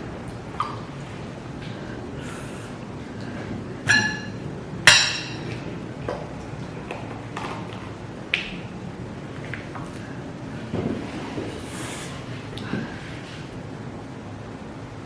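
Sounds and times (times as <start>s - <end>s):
utensil clinking against dish: 3.9s - 5.6s.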